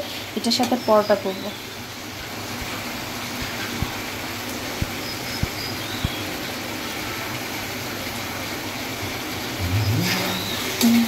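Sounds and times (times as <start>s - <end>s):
gravy sizzling in a pan: 0.0s - 10.9s
soft low thumps: 4.8s - 6.2s.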